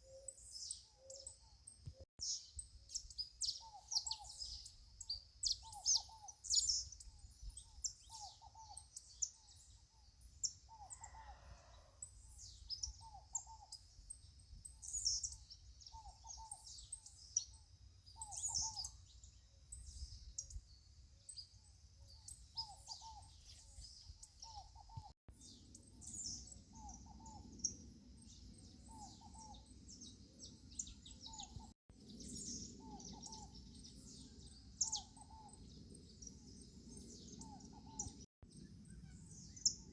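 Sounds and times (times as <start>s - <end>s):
small birds chirping: 0.0s - 11.3s, 12.0s - 39.9s
low bird hooting: 10.7s - 12.0s.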